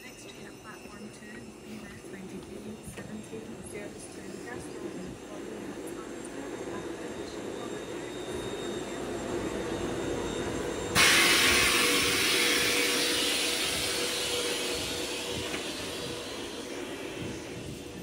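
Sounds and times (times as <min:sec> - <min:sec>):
electric train humming: 0:00.0 - 0:18.0
compressed air hissing: 0:10.9 - 0:18.0.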